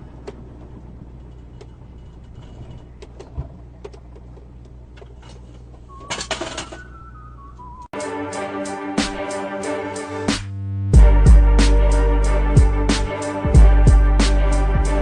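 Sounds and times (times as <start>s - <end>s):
descending tones: 5.9s - 15.0s.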